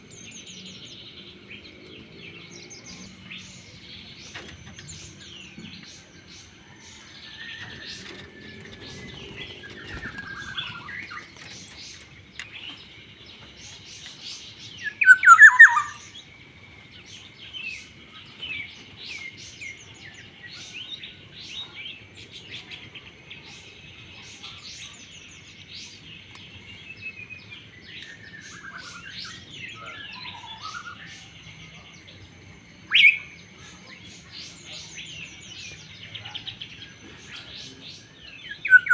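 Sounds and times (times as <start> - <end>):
birdsong chirps and whistles: 0.0 - 38.9
oriole calling: 14.8 - 16.3, 35.8 - 38.9.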